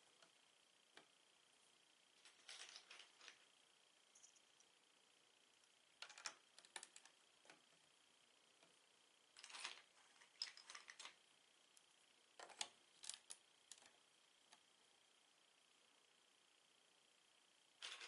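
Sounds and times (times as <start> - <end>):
plastic bricks clicking and rattling: 9.4 - 11.2.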